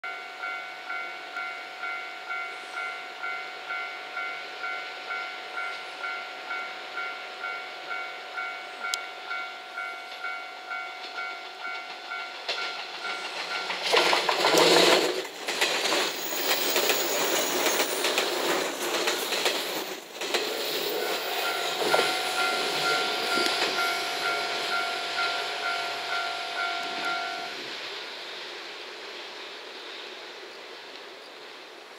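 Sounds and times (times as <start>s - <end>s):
electric train passing: 0.1s - 31.9s
level crossing alarm clanging: 5.1s - 14.9s, 20.3s - 27.6s.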